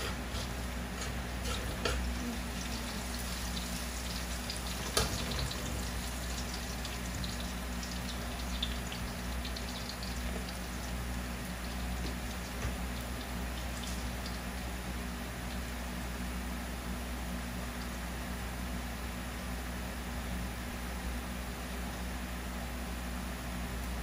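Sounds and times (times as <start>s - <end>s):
garlic and onion sizzling in oil: 0.0s - 19.2s
steady low hum: 0.0s - 24.0s.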